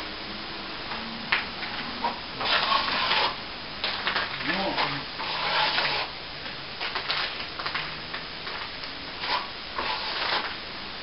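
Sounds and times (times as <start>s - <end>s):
trowel scraping wet plaster: 2.4s - 3.4s, 4.5s - 6.1s, 9.2s - 10.5s.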